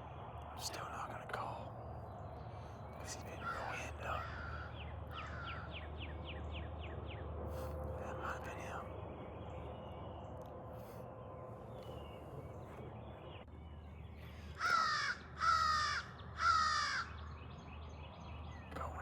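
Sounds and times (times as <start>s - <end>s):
crow cawing: 3.4s - 5.8s, 14.5s - 17.3s.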